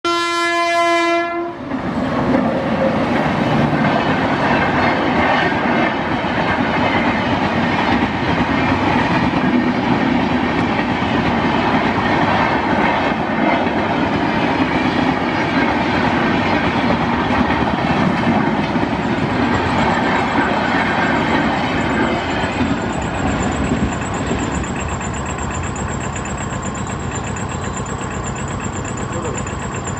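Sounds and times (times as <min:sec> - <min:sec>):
locomotive horn: 0:00.0 - 0:01.6
train wheels clattering on rails: 0:01.6 - 0:29.9.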